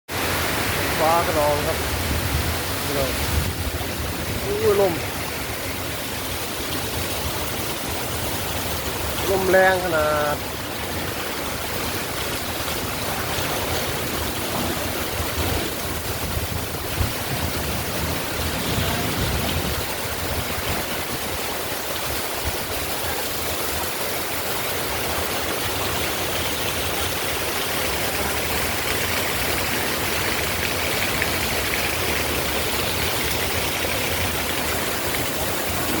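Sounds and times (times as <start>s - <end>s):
wind gusts hitting microphone: 0.1s - 9.2s, 10.4s - 23.0s
wind and rain rushing: 0.1s - 36.0s.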